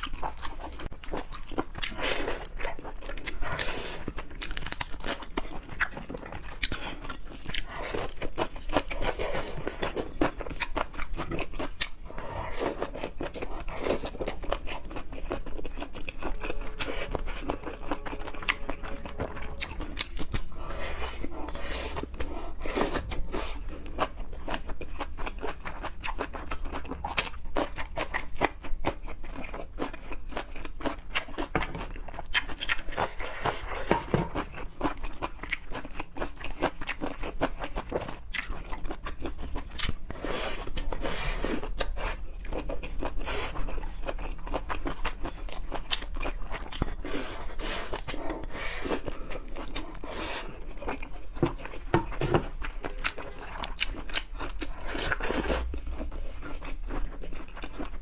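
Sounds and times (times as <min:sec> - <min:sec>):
chewing and crunching seafood: 0:00.0 - 0:58.0.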